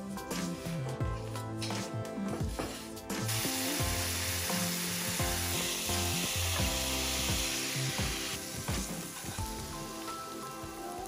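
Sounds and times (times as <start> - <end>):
fruit sizzling in butter: 3.3 - 11.0.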